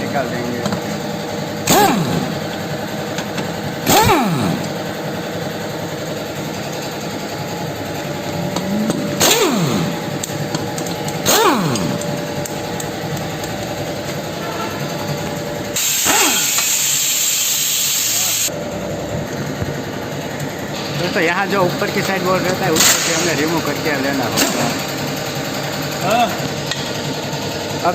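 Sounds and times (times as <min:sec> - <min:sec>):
air wrench bursts: 0:01.6 - 0:05.0, 0:09.0 - 0:12.9, 0:15.8 - 0:18.5
loud air hiss: 0:15.8 - 0:18.5.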